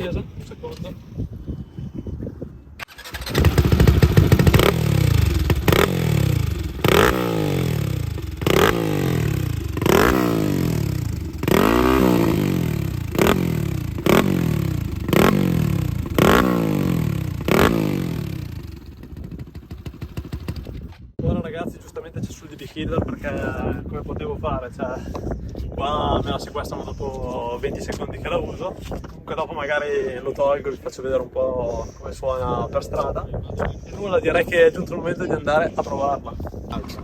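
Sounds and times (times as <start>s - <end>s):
motorcycle engine revving: 2.8s - 21.1s.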